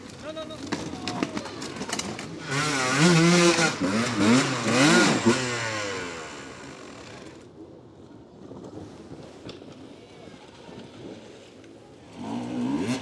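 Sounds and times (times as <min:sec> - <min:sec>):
dirt bike engine revving: 0:02.3 - 0:07.4, 0:12.1 - 0:13.0.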